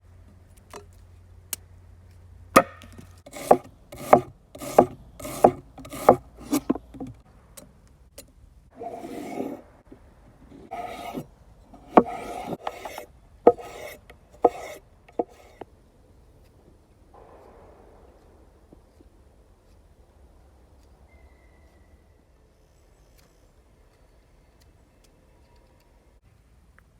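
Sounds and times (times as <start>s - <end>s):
scraping: 2.6s - 7.2s, 8.8s - 9.7s, 10.4s - 15.6s
sharp knocks: 11.9s - 15.6s.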